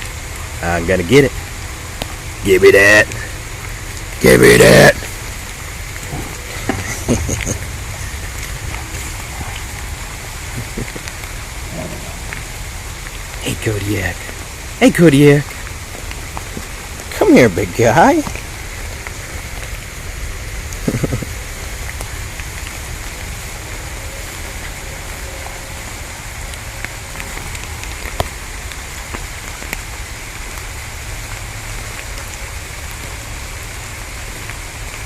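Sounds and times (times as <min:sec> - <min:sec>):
raindrops tapping: 0:00.0 - 0:35.0
steady rain falling: 0:00.0 - 0:35.0.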